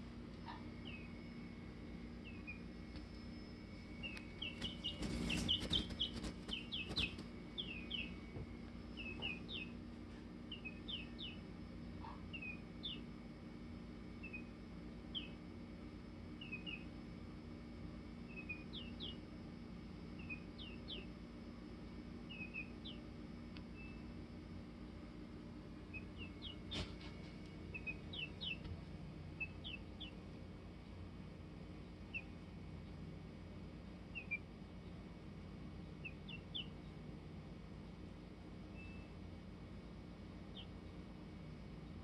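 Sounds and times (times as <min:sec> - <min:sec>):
steady low hum: 0:00.0 - 0:42.0
chicken chirping: 0:00.4 - 0:01.3, 0:02.2 - 0:09.8, 0:10.5 - 0:13.1, 0:14.2 - 0:15.4, 0:16.4 - 0:17.0, 0:18.3 - 0:19.3, 0:20.1 - 0:21.2, 0:22.3 - 0:24.1, 0:25.8 - 0:30.3, 0:31.8 - 0:32.4, 0:34.0 - 0:34.5, 0:35.8 - 0:37.0, 0:38.7 - 0:39.2, 0:40.4 - 0:40.8.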